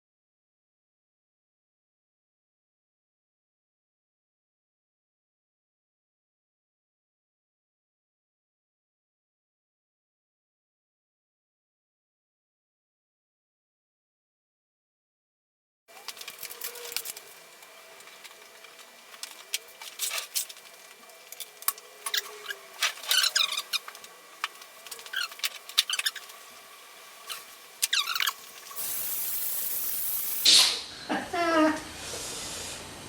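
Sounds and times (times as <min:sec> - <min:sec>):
steam cleaner hissing: 0:21.9 - 0:30.7, 0:32.0 - 0:33.0
short squeaks: 0:22.1 - 0:23.9, 0:25.0 - 0:26.4, 0:27.3 - 0:28.4.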